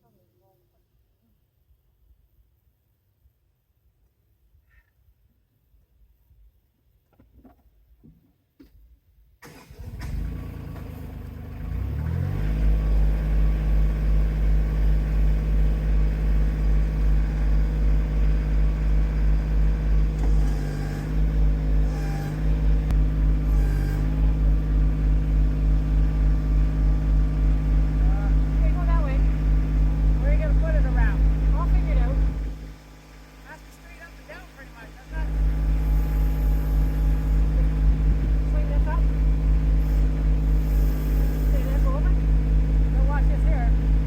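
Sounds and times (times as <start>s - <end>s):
engine starting and running: 9.4s - 44.0s.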